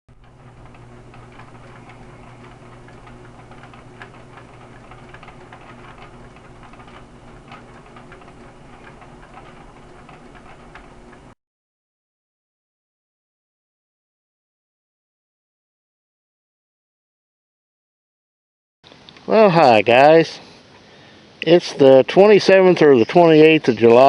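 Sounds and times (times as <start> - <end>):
clicking and rattling ticks: 0.1 - 11.3.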